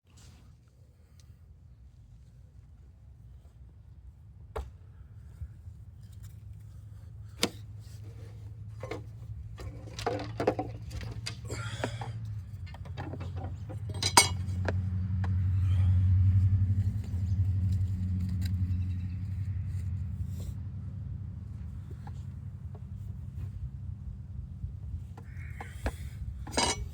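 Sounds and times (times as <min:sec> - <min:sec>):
objects clicking and clinking: 0:12.7 - 0:14.5.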